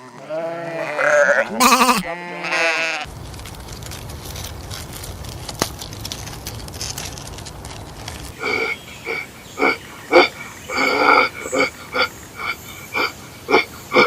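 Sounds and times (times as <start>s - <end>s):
animal bleating: 0.0s - 3.1s.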